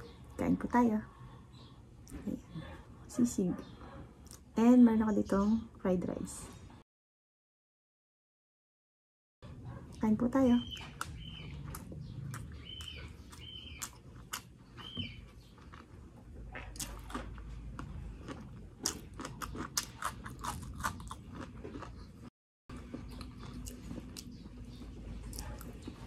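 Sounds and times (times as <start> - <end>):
crunchy bites into okra: 10.6 - 22.0
wet chewing: 10.6 - 26.0.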